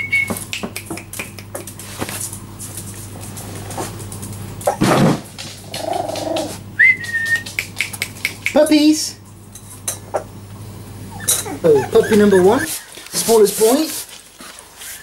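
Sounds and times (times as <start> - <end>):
puppies whimpering: 11.0 - 13.4
puppy high squeal: 11.1 - 12.9.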